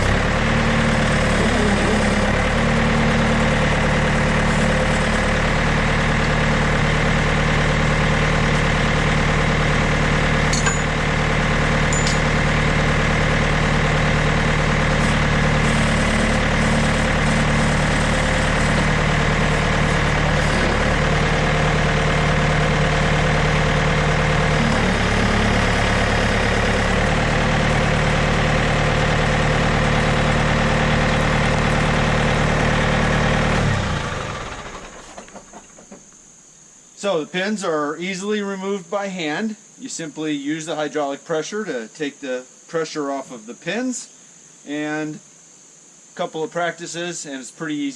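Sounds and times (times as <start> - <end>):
diesel engine idling: 0.0 - 35.8.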